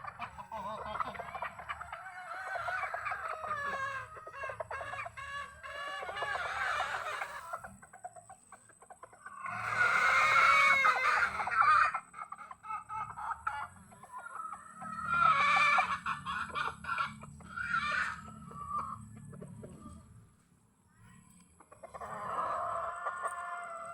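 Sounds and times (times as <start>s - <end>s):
chickens clucking: 0.0s - 23.9s
rooster crowing: 22.1s - 23.9s.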